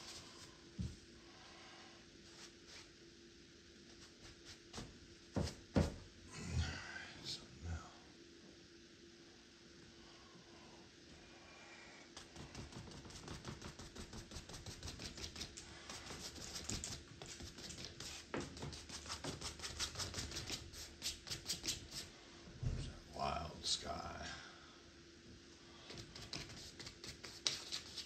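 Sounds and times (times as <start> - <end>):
paintbrush scrubbing canvas: 12.2 - 22.1, 25.9 - 28.0.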